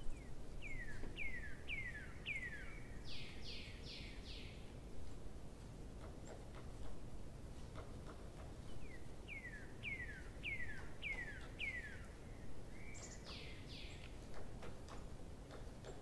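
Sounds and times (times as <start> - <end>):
low background noise: 0.0 - 16.0
bird calling: 8.8 - 14.0.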